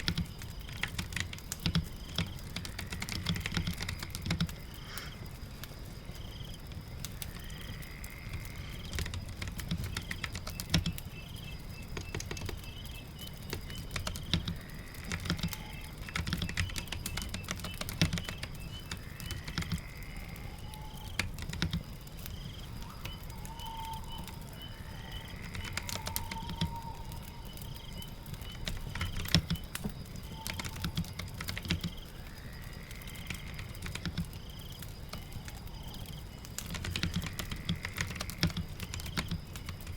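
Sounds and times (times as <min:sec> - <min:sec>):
keyboard typing: 0:00.0 - 0:04.6, 0:08.8 - 0:11.0, 0:11.9 - 0:12.9, 0:13.5 - 0:19.8, 0:21.0 - 0:22.0, 0:23.8 - 0:32.0, 0:33.2 - 0:34.4, 0:35.1 - 0:39.9
birds chirping: 0:00.0 - 0:39.9.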